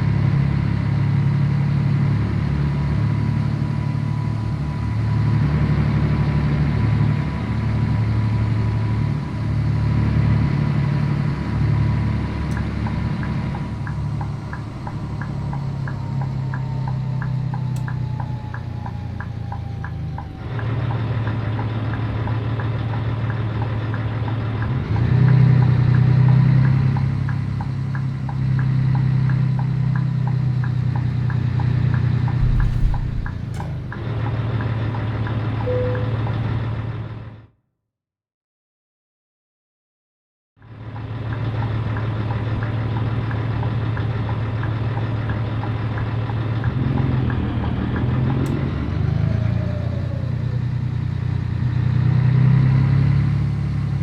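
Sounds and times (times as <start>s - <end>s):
truck diesel engine running: 0.0s - 36.9s
low rumble: 32.3s - 34.2s.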